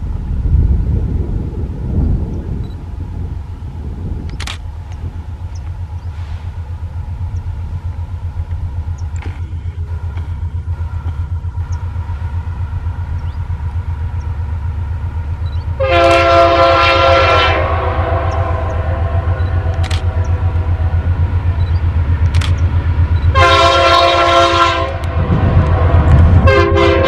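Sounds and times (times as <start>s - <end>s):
freight train rumbling past: 0.0s - 27.0s
train air horn blasts: 15.8s - 21.0s, 23.3s - 27.0s.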